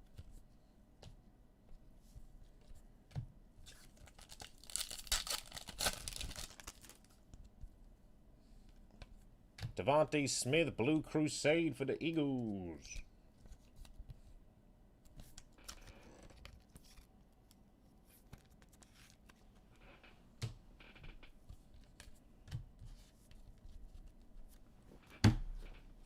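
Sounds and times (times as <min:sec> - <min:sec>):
trading cards rustling: 0:03.7 - 0:07.2
wrapper tearing: 0:04.0 - 0:07.1.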